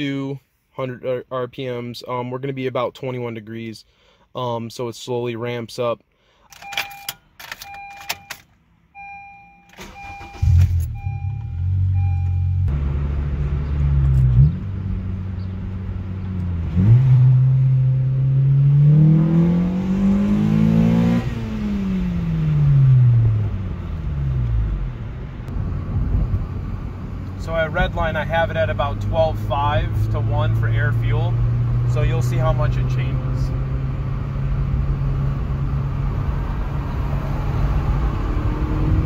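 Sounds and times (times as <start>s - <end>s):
car warning chime beeping: 6.5s - 12.7s
car engine accelerating: 9.8s - 39.0s.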